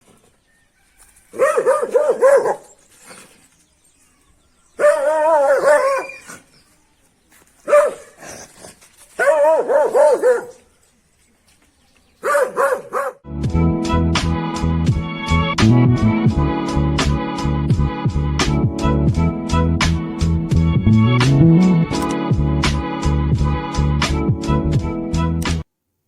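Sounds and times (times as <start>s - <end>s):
dog barking: 1.3s - 2.7s, 4.8s - 6.2s, 7.6s - 8.2s, 9.2s - 10.7s, 12.2s - 13.2s.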